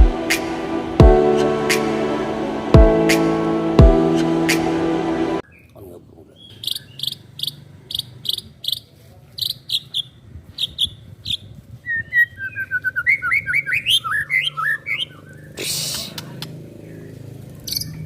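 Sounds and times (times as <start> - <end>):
intro music: 0.0 - 5.4.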